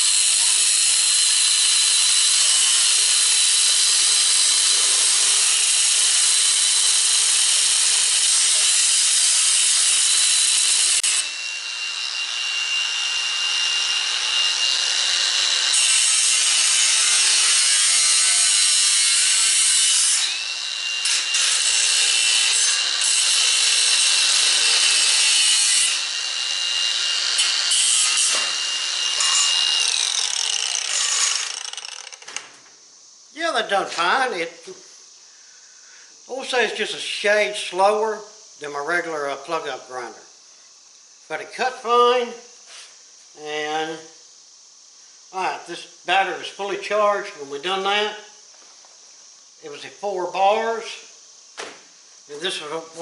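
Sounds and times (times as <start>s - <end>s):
angle grinder cutting metal: 0.0s - 32.4s.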